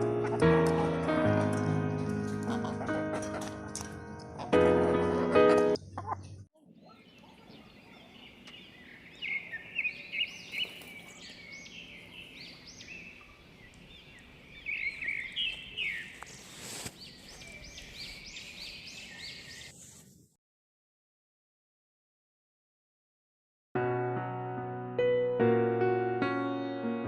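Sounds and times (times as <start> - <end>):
small birds chirping: 5.7 - 20.0
brief rustle: 16.0 - 17.5.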